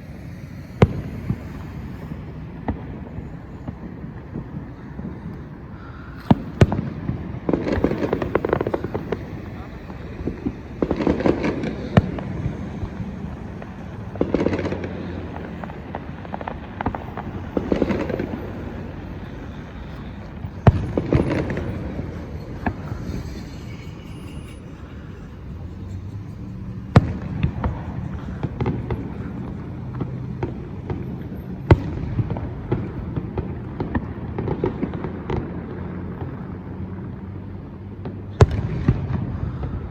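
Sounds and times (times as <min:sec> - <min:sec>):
fireworks booming: 0:00.0 - 0:39.9
fireworks cracking: 0:00.0 - 0:39.9.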